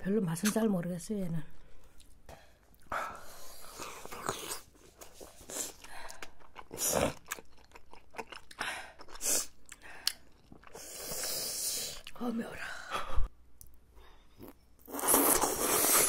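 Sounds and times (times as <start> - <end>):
chewing and slurping: 3.7 - 12.1.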